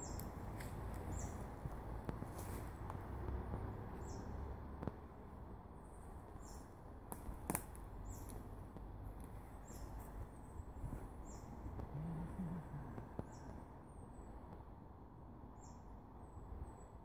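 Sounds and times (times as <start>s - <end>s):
soft low rumble: 8.4s - 13.8s.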